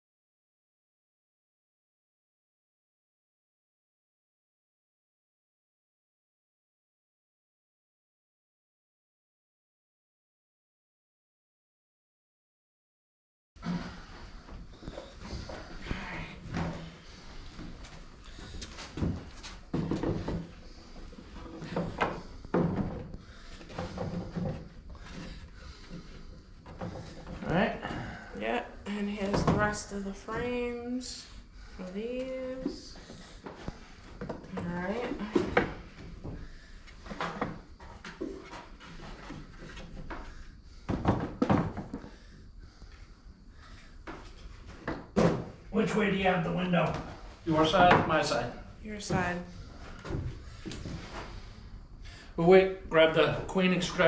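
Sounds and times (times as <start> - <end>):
wooden frames knocking and clattering: 18.4 - 20.6, 21.3 - 25.4, 40.9 - 42.1.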